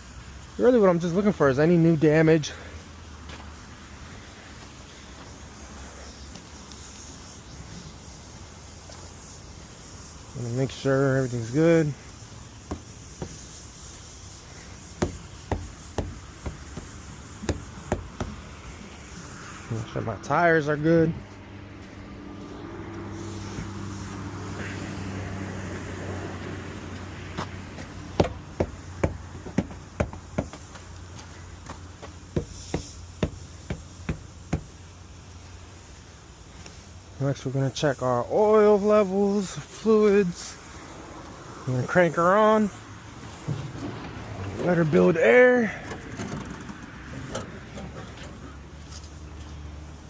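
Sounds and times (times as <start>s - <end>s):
sharp knocks: 15.0s - 18.4s, 28.2s - 30.6s.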